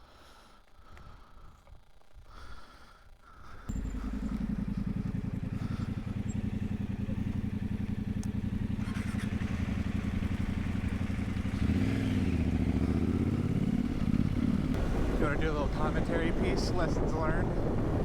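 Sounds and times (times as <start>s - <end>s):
motorcycle engine running: 3.6s - 18.0s.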